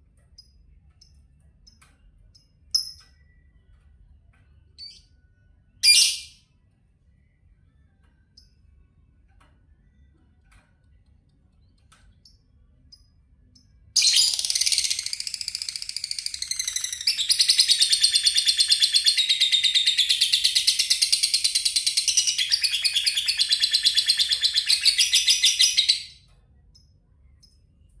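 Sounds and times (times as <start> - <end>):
lovebird trilling: 14.0 - 26.1.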